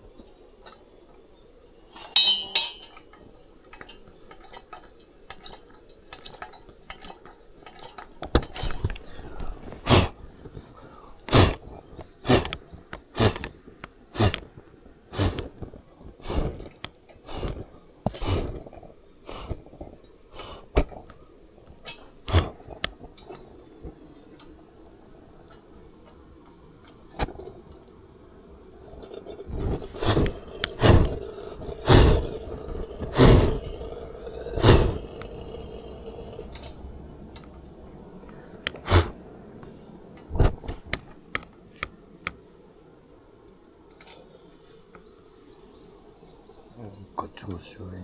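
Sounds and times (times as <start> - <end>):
sharp knocks and clinks: 2.0 - 8.6.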